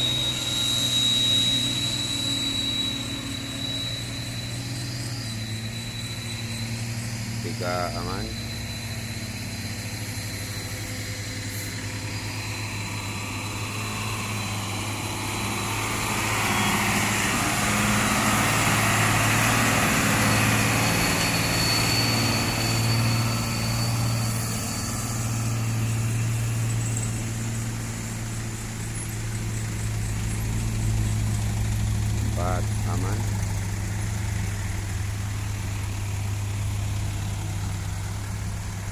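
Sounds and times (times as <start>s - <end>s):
diesel truck grinding uphill: 0.0s - 38.9s.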